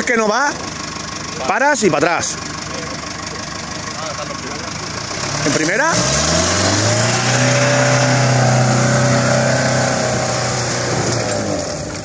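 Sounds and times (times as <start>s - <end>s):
engine revving hard: 5.1s - 12.0s.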